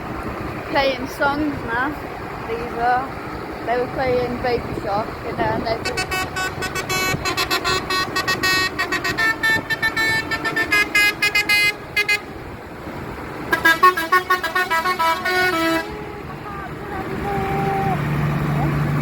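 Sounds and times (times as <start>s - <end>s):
musical vehicle horns: 5.7s - 12.5s, 13.5s - 17.8s.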